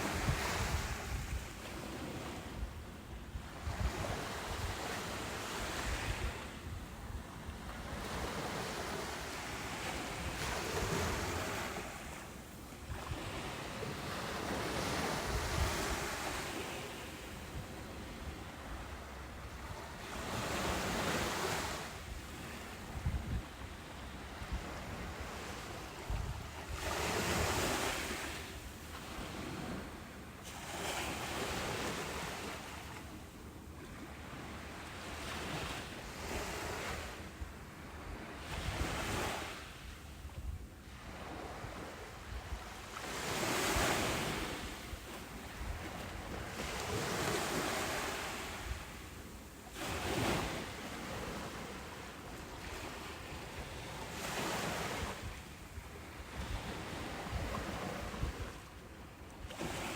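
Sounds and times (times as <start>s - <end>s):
ocean surf breaking on beach: 0.0s - 32.9s.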